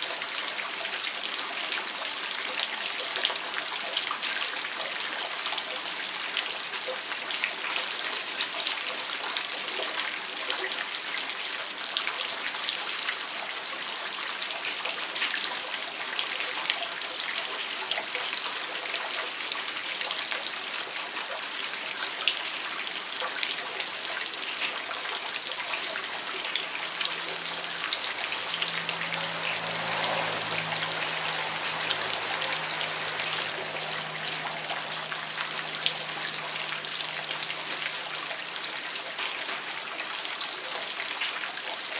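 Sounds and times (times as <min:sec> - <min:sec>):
rain falling: 0:22.9 - 0:41.9
running water: 0:23.0 - 0:41.9.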